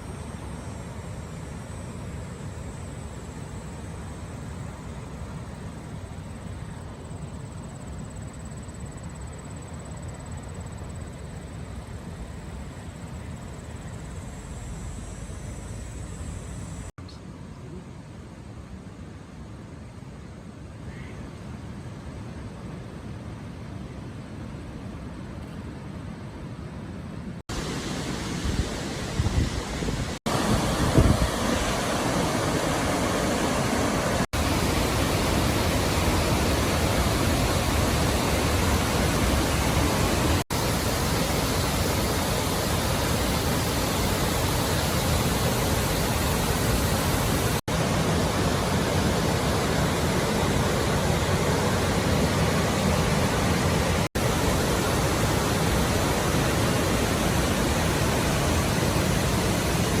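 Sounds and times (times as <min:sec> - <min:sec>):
waterfall rushing: 0:27.5 - 1:00.0.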